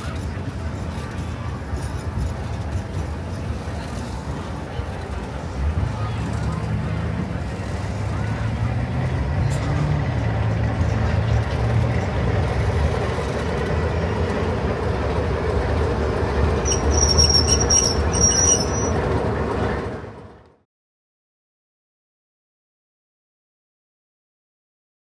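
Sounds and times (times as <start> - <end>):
diesel locomotive engine hum: 0.0 - 20.6
train wheels rumbling on track: 0.0 - 20.6
wheels squealing: 15.4 - 19.8.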